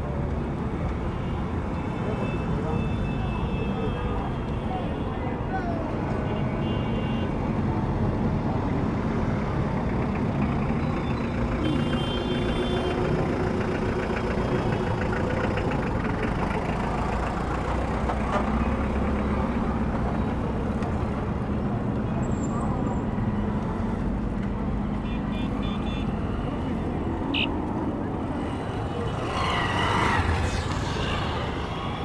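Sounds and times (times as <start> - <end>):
rumble of passing cars: 7.3 - 32.0
large vehicle engine running: 13.0 - 21.9, 26.1 - 32.0.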